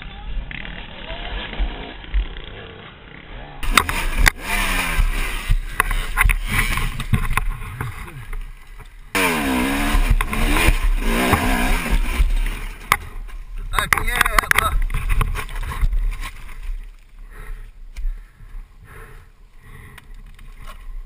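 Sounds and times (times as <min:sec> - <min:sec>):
dirt bike engines revving: 0:00.0 - 0:16.3
knocks and clatter: 0:09.9 - 0:16.5.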